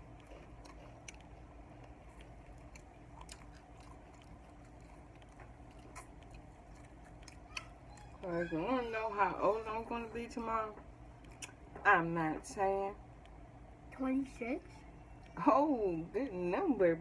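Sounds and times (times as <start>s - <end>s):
quiet chewing of food: 0.0s - 8.2s, 10.8s - 11.6s, 13.2s - 13.4s, 14.7s - 15.4s
low steady hum: 0.0s - 17.0s.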